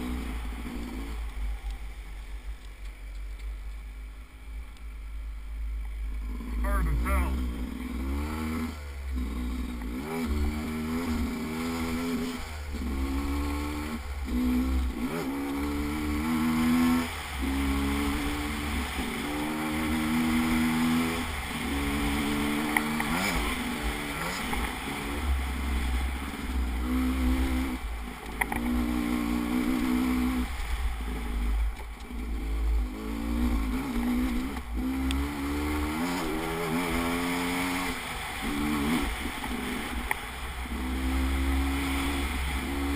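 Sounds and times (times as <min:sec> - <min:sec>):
steady low rumble: 0:00.0 - 0:08.1
vehicle engine revving: 0:06.0 - 0:42.9.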